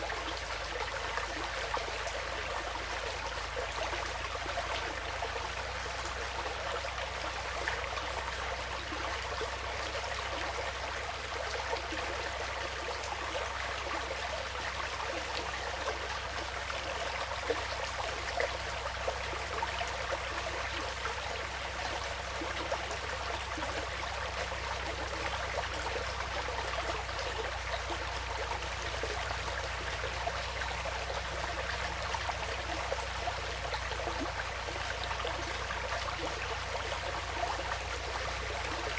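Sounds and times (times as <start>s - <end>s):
stream babbling: 0.0s - 38.9s.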